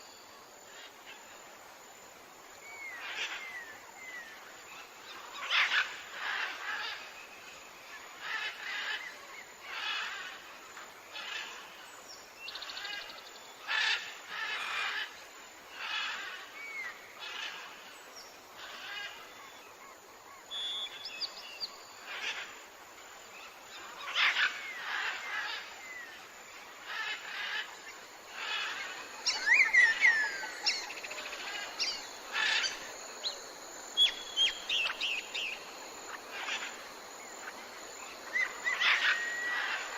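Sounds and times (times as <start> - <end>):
thin whistled chirps: 20.5 - 21.1.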